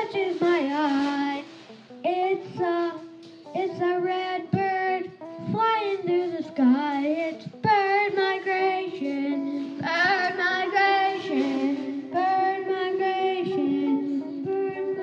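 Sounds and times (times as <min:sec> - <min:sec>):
child singing: 0:00.0 - 0:15.0
instrumental accompaniment: 0:00.0 - 0:15.0.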